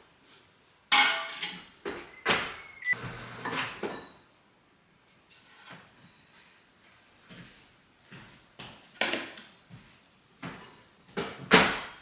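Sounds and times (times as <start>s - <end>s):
dishes clattering: 0.9s - 2.6s.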